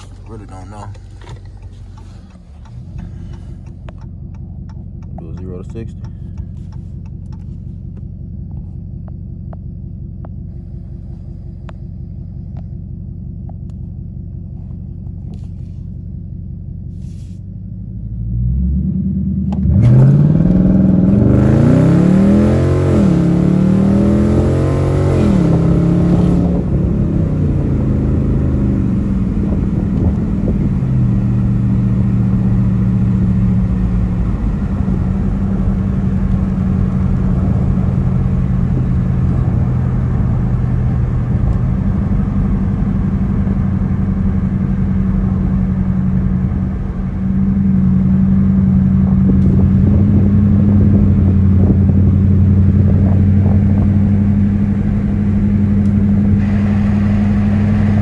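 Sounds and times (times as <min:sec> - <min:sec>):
car engine revving and accelerating: 0:17.8 - 0:58.0.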